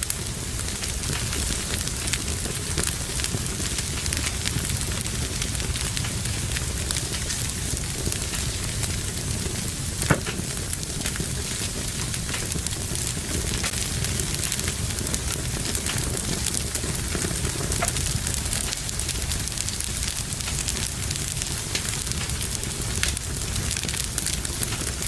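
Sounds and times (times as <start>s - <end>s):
wood fire crackling: 0.0s - 25.0s
sharp loud fire pop: 10.0s - 10.6s.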